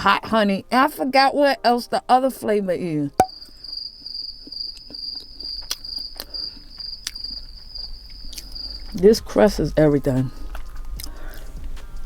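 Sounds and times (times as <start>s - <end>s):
cricket chirping: 3.2s - 9.8s
crunching and chewing pizza crust: 3.4s - 12.0s.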